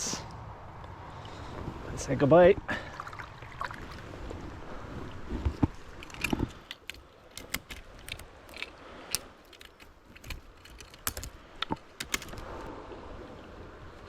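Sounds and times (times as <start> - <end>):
fishing tackle clicking: 6.0 - 12.5.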